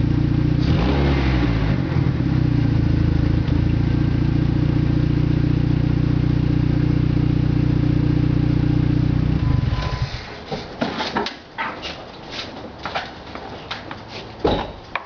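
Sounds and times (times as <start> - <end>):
car engine idling: 1.7 - 10.5.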